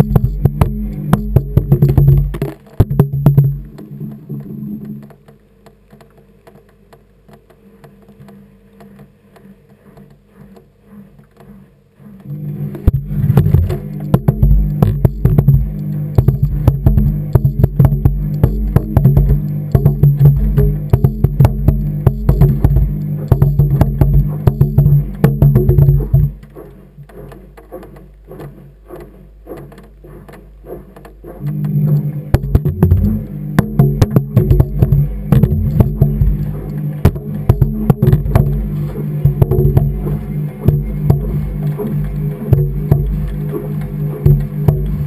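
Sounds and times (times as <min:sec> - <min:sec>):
washing machine motor hum: 0:00.0 - 0:45.0
low sustained notes: 0:12.3 - 0:27.3, 0:31.3 - 0:45.0
tumbling load knocking: 0:12.9 - 0:28.4, 0:32.3 - 0:43.5, 0:44.2 - 0:45.0.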